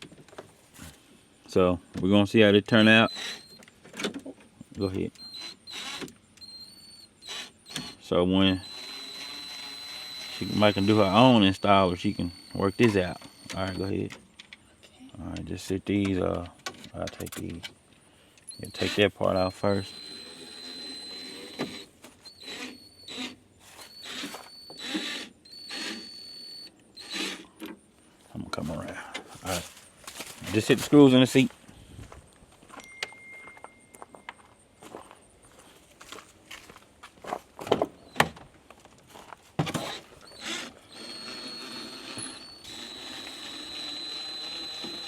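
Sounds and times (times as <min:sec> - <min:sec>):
power driver motor whine: 0:02.6 - 0:03.7, 0:04.6 - 0:14.1, 0:18.4 - 0:27.8, 0:39.6 - 0:45.0
screwdriver rasping turns: 0:02.7 - 0:03.7, 0:04.8 - 0:13.8, 0:18.4 - 0:27.6, 0:39.8 - 0:45.0.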